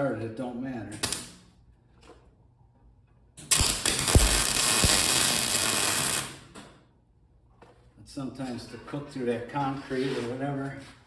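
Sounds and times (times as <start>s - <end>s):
arc welding hiss: 3.5s - 6.4s.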